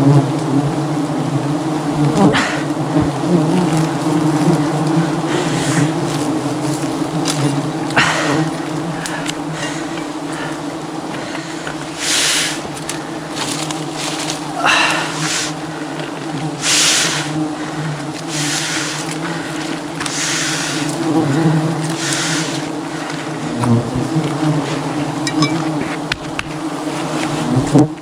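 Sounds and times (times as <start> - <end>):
bees buzzing: 0.0 - 28.0.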